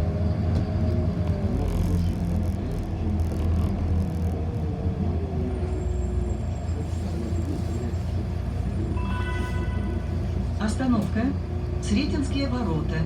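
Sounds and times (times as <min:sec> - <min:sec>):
bus drivetrain and road rumble: 0:00.0 - 0:13.0.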